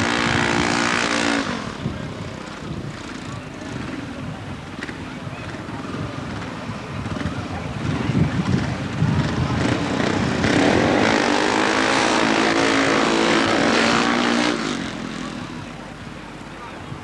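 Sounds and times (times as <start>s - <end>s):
motorbike engine revving: 0.0s - 2.1s, 7.0s - 15.8s.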